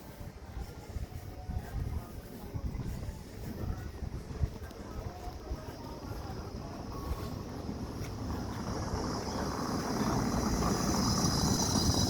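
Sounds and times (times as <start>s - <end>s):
motor vehicle approaching: 5.9s - 12.0s.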